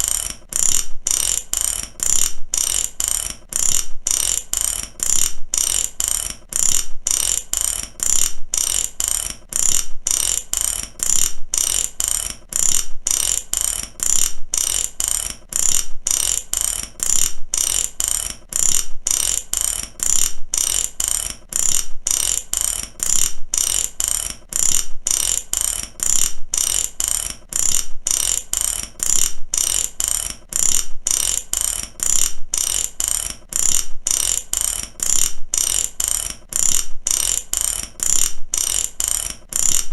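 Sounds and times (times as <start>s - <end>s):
ratchet wrench clicking: 0.0s - 39.9s.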